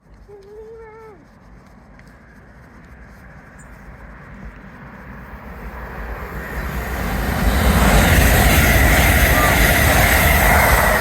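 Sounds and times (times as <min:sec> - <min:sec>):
train rumbling: 0:02.7 - 0:11.0.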